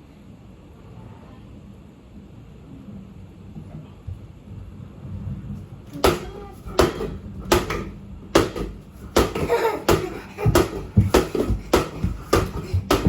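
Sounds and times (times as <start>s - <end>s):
sharp thuds: 5.9s - 13.0s.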